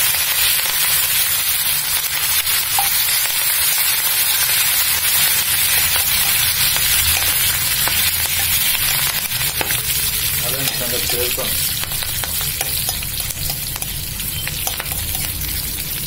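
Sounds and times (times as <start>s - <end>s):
chillies sizzling in hot oil: 0.0s - 16.0s
metal spoon stirring and clicking: 2.7s - 3.4s, 5.6s - 15.6s.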